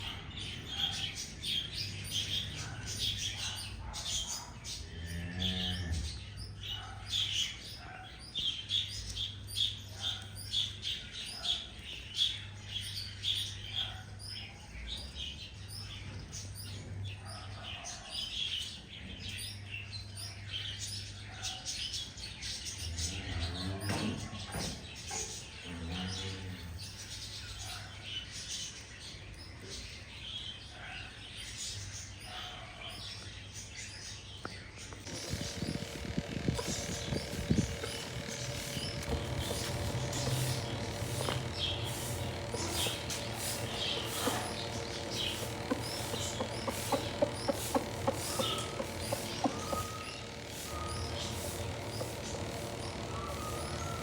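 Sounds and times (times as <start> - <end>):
small birds chirping: 0.0 - 54.0
drawn-out bird call: 34.9 - 54.0.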